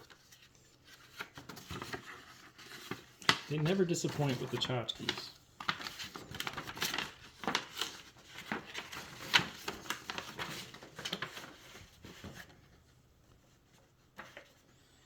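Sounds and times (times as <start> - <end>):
packaging rustling: 0.0 - 12.6.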